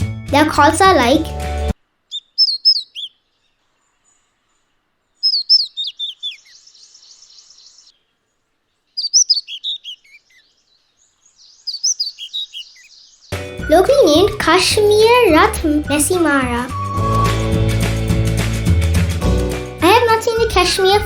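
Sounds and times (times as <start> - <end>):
bird calling high notes: 2.1 - 3.3, 5.2 - 7.9, 9.0 - 10.4, 11.5 - 17.9.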